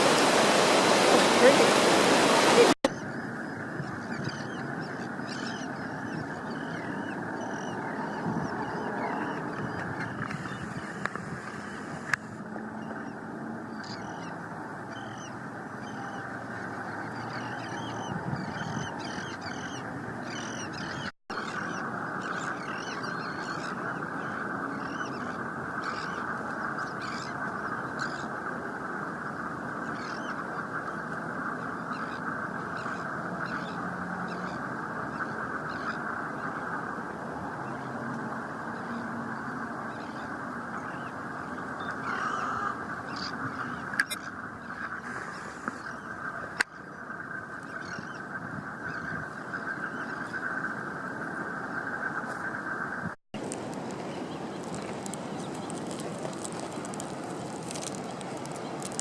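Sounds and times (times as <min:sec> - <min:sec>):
steady rushing noise: 0:00.0 - 0:12.6
water birds calling: 0:00.0 - 0:59.0.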